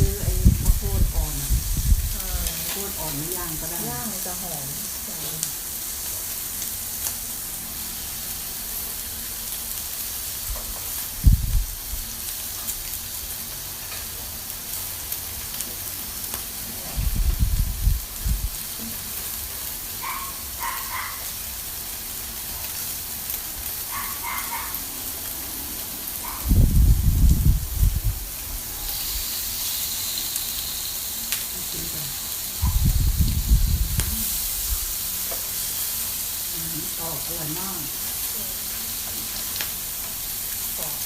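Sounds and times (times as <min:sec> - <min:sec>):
meat sizzling on a grill: 0:00.0 - 0:41.0.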